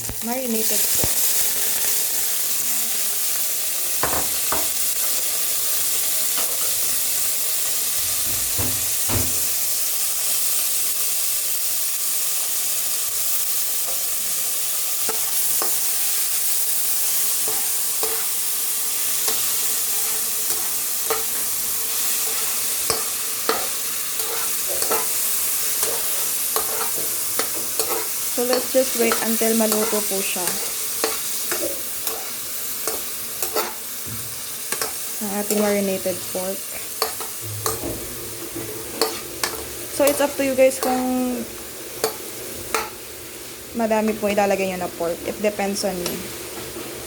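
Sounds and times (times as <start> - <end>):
pork sizzling in hot oil: 0.0 - 47.0
stirring scrapes against pan: 17.3 - 18.4, 19.1 - 35.8, 36.7 - 41.2.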